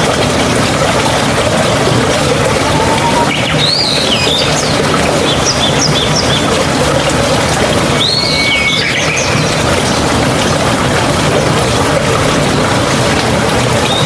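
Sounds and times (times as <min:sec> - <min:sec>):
flowing water rushing: 0:00.0 - 0:14.0
birds whistling calls: 0:02.6 - 0:06.4, 0:08.0 - 0:09.5.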